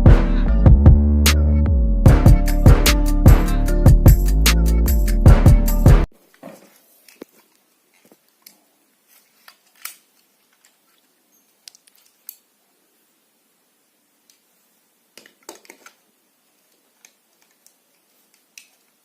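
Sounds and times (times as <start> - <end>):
plastic toy parts clicking: 9.5 - 10.8, 15.2 - 16.0, 17.0 - 18.9.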